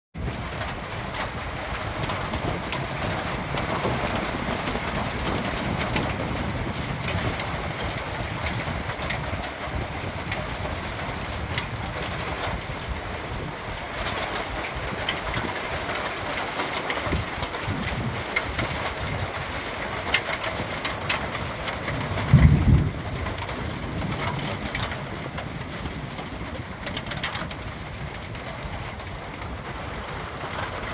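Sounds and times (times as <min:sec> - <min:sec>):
rain falling: 0:00.2 - 0:30.9
drips and patters: 0:13.7 - 0:30.9.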